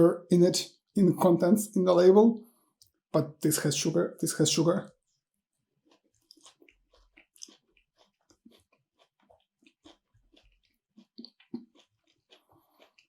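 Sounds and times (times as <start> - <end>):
person chewing food: 5.0 - 13.0.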